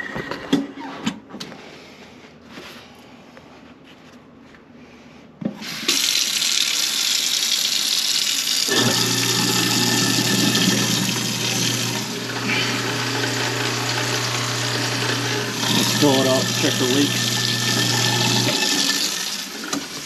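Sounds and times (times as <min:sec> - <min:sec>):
garbage disposal humming: 0:05.4 - 0:20.0
water running into sink: 0:05.6 - 0:20.0.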